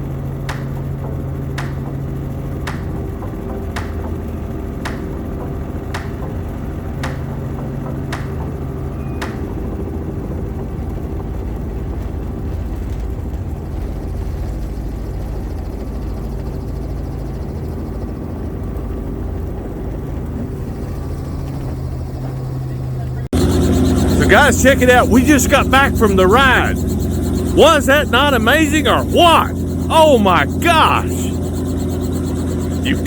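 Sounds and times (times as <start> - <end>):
helicopter drone: 23.4 - 33.0.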